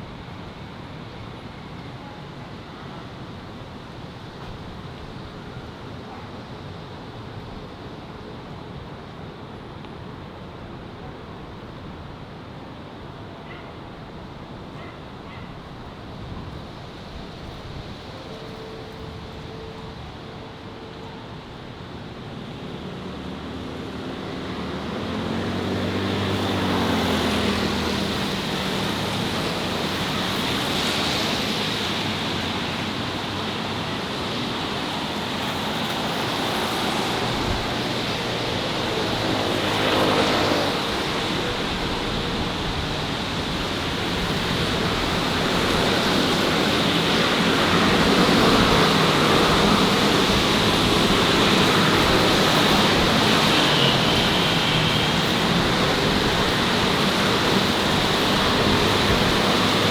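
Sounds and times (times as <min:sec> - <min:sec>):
city road traffic: 0:00.0 - 0:59.9
vehicles passing close by: 0:21.3 - 0:59.9.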